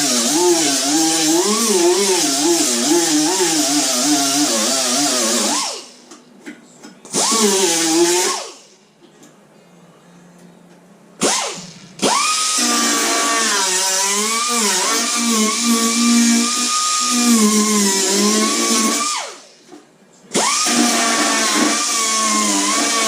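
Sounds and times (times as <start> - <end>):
electric grinder on metal: 0.0 - 5.8, 7.2 - 8.6, 11.2 - 19.4, 20.4 - 23.0.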